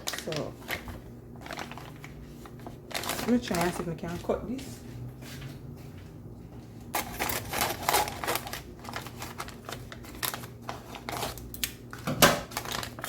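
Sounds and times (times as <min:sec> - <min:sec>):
paper bag crinkling: 0:00.0 - 0:04.1, 0:06.9 - 0:13.0.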